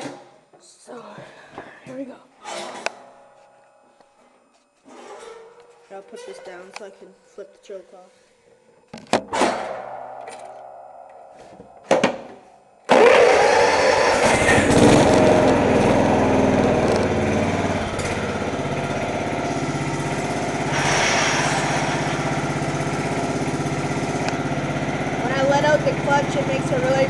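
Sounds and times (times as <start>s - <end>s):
lawn tractor engine running: 12.9s - 27.0s.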